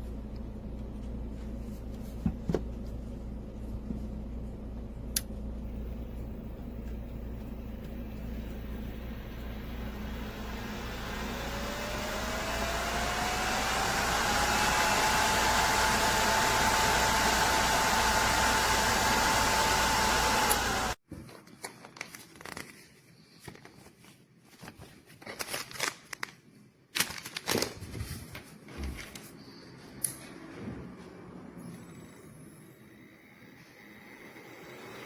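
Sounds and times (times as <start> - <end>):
suction fan whining: 0.0 - 21.0
crinkling handling sounds: 21.0 - 30.3.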